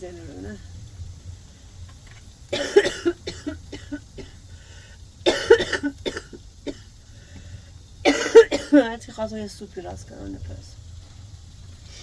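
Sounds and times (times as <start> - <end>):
woman coughing: 2.6 - 4.4, 5.3 - 6.8, 8.1 - 8.9.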